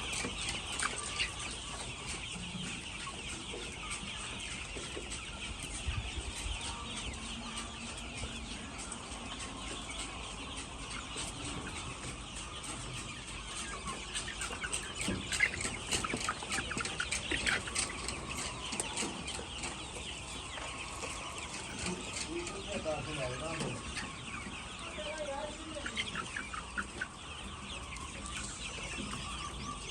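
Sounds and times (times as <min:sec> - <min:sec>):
chickens clucking: 0:00.0 - 0:29.9.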